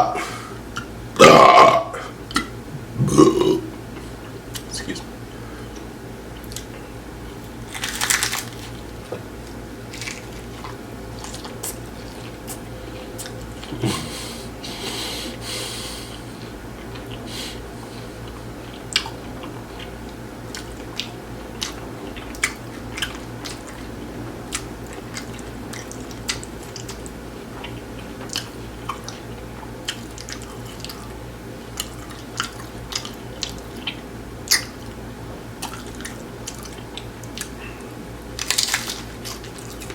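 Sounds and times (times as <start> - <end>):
crunching taco shells: 5.8 - 13.8, 35.6 - 39.9.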